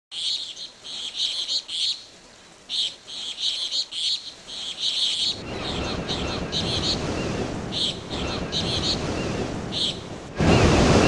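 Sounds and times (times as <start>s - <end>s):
birds twittering: 0.1s - 11.0s
low rushing noise: 5.2s - 11.0s.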